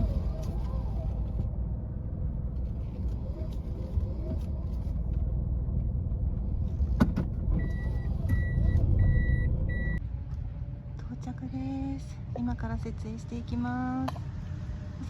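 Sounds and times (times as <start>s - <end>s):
car engine rumbling: 0.0s - 15.0s
reverse warning beeper: 7.6s - 10.0s.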